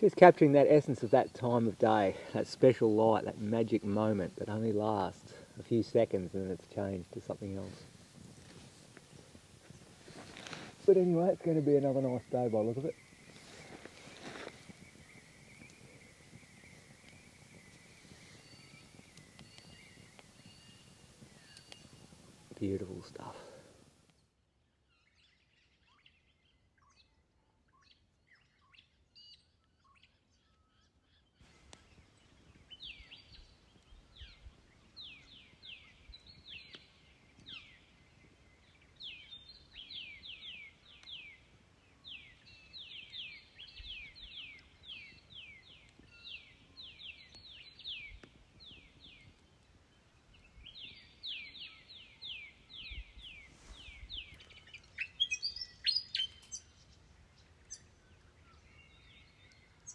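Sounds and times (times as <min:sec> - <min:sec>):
faint bird calls: 0:00.0 - 0:23.9.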